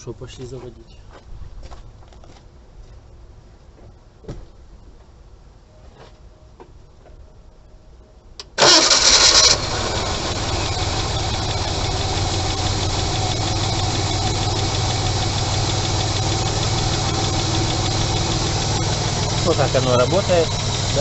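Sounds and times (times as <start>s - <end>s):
car engine idling: 8.6s - 21.0s
starter motor cranking: 8.6s - 21.0s.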